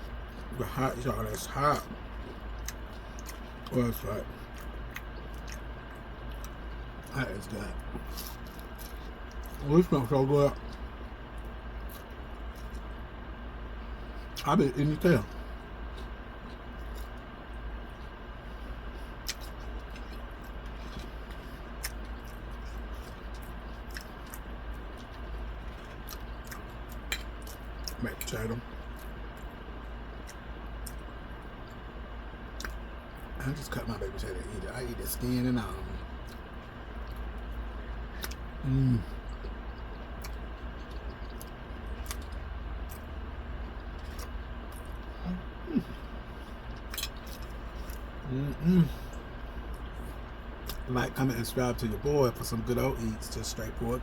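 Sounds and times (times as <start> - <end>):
low room hum: 0.0 - 54.0
chewing and food handling clicks: 1.3 - 7.2, 19.2 - 31.8, 32.5 - 32.8, 35.2 - 38.4, 39.2 - 45.1, 46.6 - 48.2.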